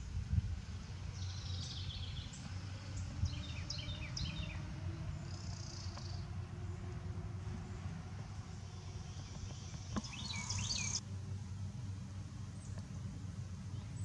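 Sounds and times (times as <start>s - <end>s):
low steady rumble: 0.0s - 14.0s
songbird chirping: 0.0s - 14.0s.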